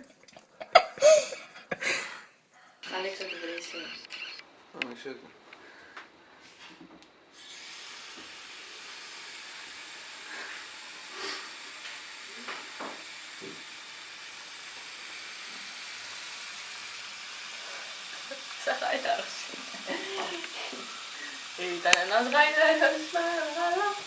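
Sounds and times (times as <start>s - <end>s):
steady hissing noise: 14.9s - 24.0s.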